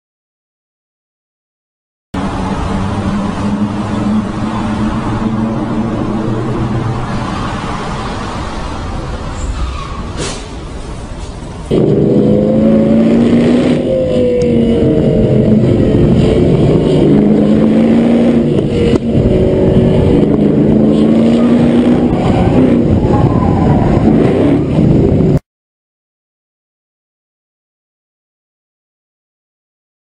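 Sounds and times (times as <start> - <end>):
car engine revving: 2.2 - 9.5, 11.5 - 25.4.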